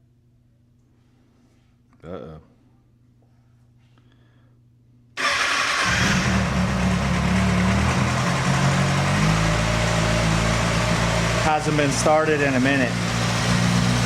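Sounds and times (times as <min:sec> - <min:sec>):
motorcycle engine starting and idling: 0:05.2 - 0:14.0.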